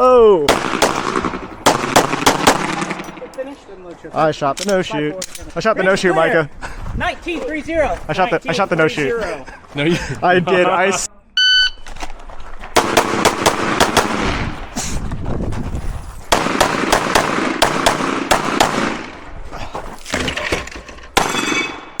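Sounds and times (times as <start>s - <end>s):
pistol shots: 0.5s - 3.3s, 12.8s - 14.6s, 16.3s - 19.2s, 21.2s - 22.0s
shot timer beep: 11.4s - 11.8s.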